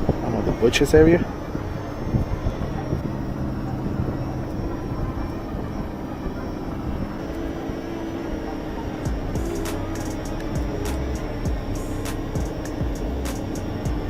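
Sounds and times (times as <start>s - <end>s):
high whine: 0.0s - 14.0s
motor droning hum: 0.0s - 14.0s
sharp clicks: 12.0s - 13.9s.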